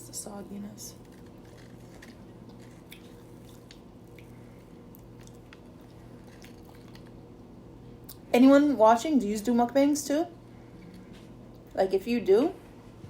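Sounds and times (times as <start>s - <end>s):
low room hum: 0.0s - 13.0s
person chewing food: 1.0s - 7.4s.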